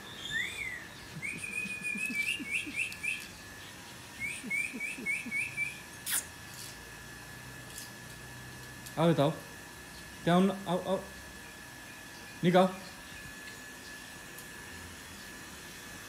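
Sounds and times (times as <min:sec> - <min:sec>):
bird chirping: 0:00.0 - 0:03.4.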